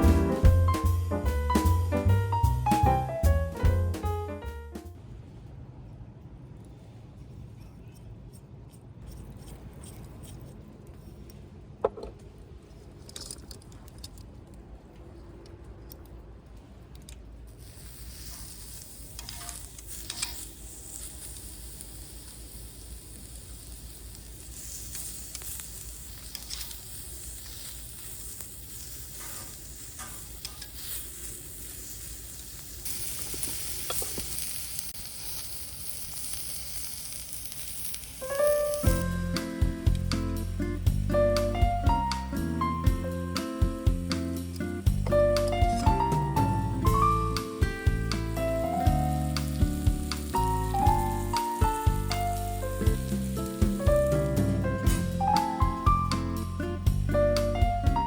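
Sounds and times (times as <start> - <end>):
wood fire sizzling and crackling: 0.0 - 4.9, 17.4 - 58.0
sharp pops of fire: 17.6 - 40.4, 44.1 - 56.4.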